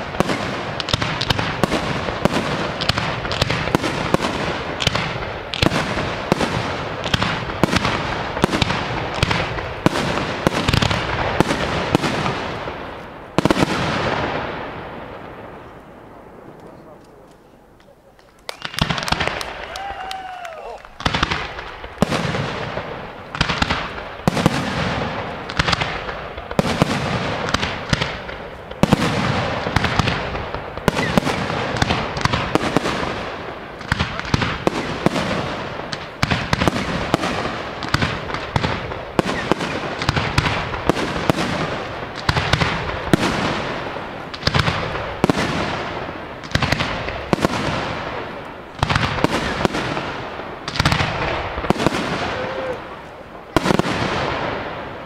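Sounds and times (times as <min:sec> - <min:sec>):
firework shells bursting: 0:16.6 - 0:55.0.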